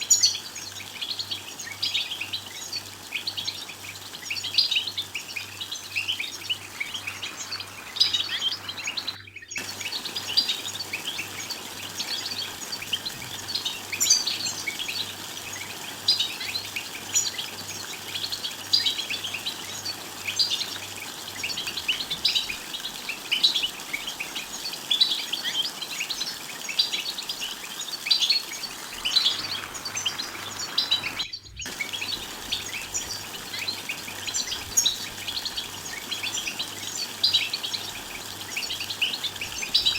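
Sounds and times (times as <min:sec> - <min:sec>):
goldfinches twittering: 0:00.0 - 0:39.9.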